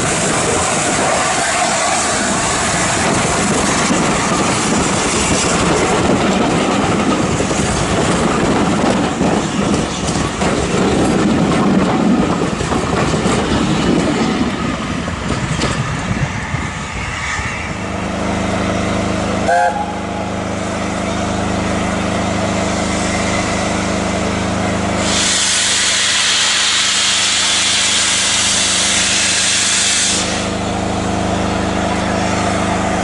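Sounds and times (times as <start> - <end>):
train wheels clattering over rail joints: 0.0 - 16.3.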